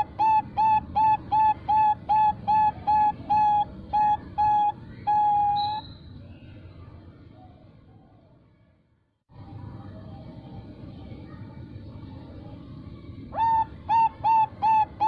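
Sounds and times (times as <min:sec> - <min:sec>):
dove cooing: 0:00.0 - 0:05.8, 0:13.4 - 0:15.0.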